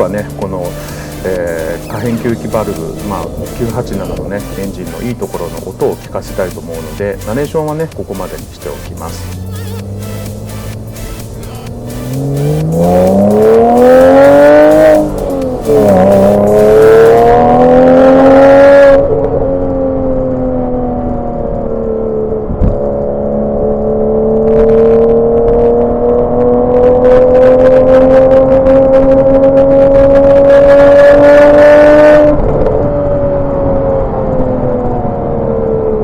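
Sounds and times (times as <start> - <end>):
car engine accelerating: 0.0 - 36.0
short thump: 22.6 - 22.8.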